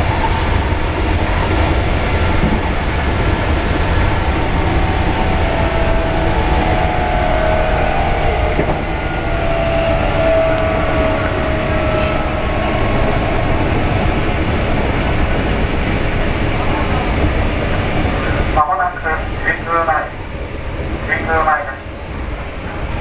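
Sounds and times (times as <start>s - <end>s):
train motor whine: 0.0s - 17.4s
train wheels rumbling: 0.0s - 23.0s.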